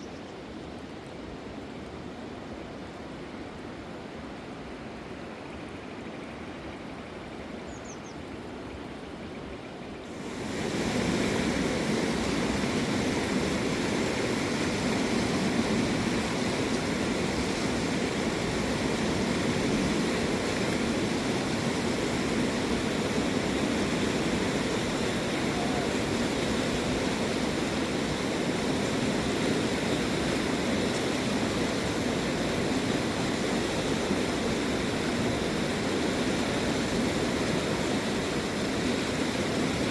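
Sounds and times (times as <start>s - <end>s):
river water rushing: 10.1s - 39.9s.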